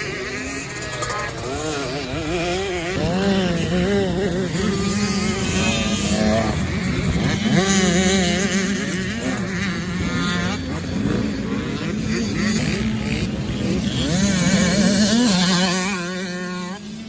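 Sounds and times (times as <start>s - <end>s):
motocross bike engines revving: 0.0s - 17.0s
steady engine drone: 0.0s - 17.0s.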